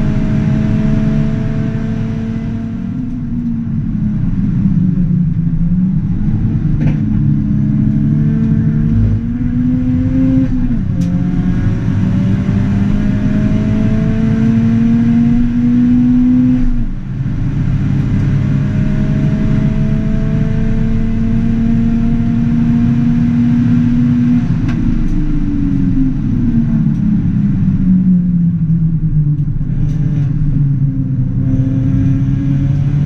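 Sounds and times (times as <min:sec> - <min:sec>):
turbocharged car engine accelerating: 0:00.0 - 0:33.0.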